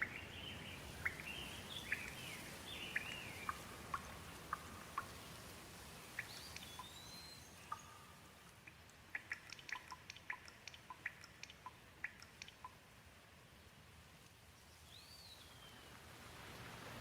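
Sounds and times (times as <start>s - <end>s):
gentle rain hiss: 0.0s - 17.0s
water drops dripping: 6.2s - 7.0s, 7.7s - 12.8s.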